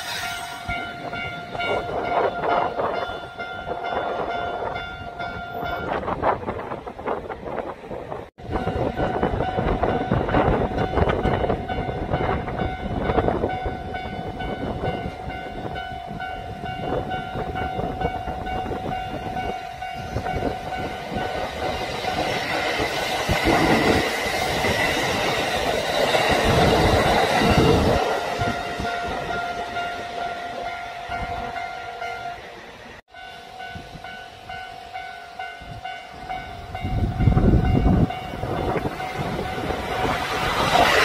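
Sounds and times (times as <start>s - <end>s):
rushing noise: 0.0s - 3.2s, 20.0s - 34.0s, 36.1s - 41.0s
train rumble: 0.0s - 41.0s.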